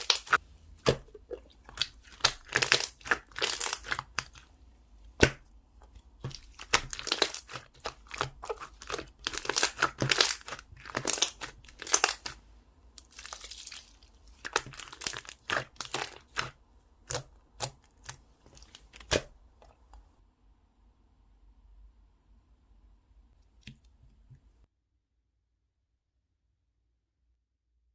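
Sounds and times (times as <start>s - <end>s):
slime crackling and popping: 0.0s - 4.4s, 6.2s - 12.4s, 13.0s - 19.3s.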